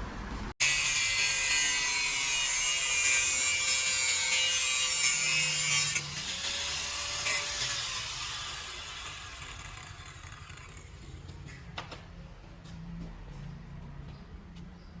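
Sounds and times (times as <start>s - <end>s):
tool scraping metal: 0.6s - 11.1s.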